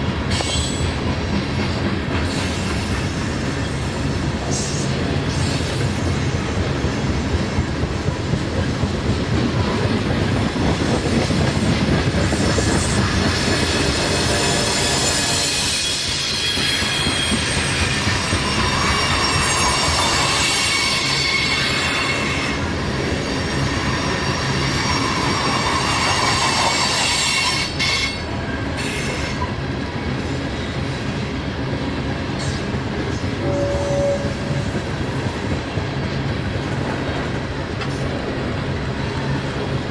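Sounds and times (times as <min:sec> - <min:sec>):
train wheels rumbling on rails: 0:00.0 - 0:39.9
high-pitched wheel squeal: 0:14.0 - 0:28.2, 0:33.4 - 0:34.6.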